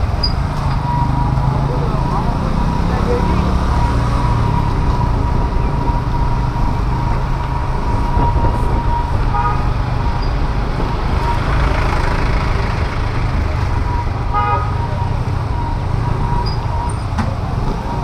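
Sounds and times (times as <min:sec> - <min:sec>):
wind noise: 0:04.4 - 0:11.4
scooter horn toot: 0:09.2 - 0:09.7, 0:14.3 - 0:14.8.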